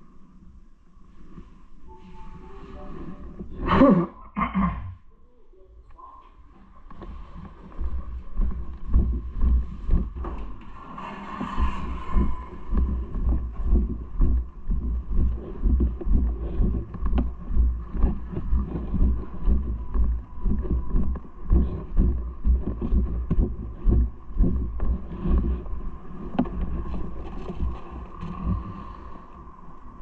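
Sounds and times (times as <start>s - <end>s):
faint steady whine: 0.0s - 30.0s
wind on microphone: 7.0s - 30.0s
low rhythmic thumps: 7.6s - 10.6s, 11.6s - 27.8s.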